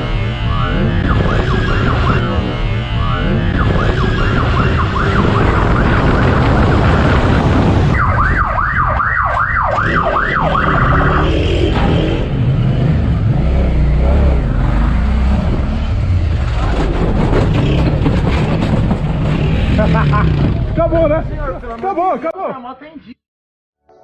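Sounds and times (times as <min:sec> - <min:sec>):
police siren: 0:00.0 - 0:12.2
vehicle and road noise: 0:00.0 - 0:22.3.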